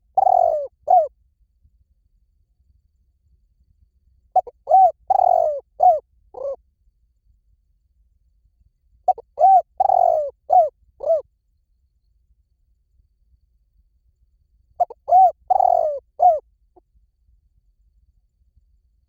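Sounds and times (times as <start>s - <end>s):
dove cooing: 0.0s - 1.1s, 4.4s - 6.6s, 9.1s - 11.2s, 14.8s - 16.4s.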